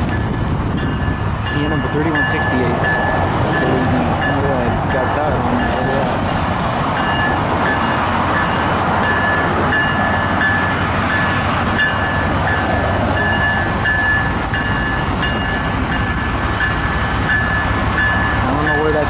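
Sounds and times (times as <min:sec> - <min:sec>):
diesel locomotive rumbling: 0:00.0 - 0:19.0
locomotive bell dinging: 0:00.0 - 0:19.0.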